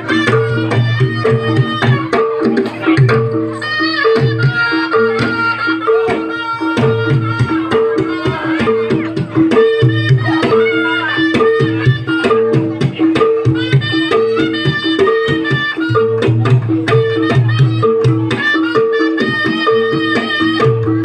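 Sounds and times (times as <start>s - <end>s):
hand drums beating: 0.0s - 21.0s
high wavering melody: 0.0s - 21.0s.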